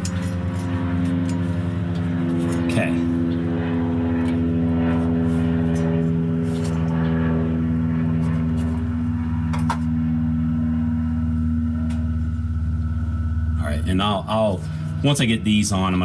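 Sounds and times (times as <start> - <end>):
metallic clinks of hand tools: 0.0 - 1.4
steady machine hum: 0.0 - 16.0.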